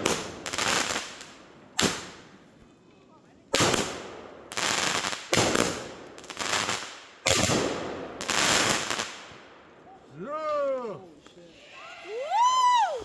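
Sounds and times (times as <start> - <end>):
fireworks bangs: 3.5 - 9.3.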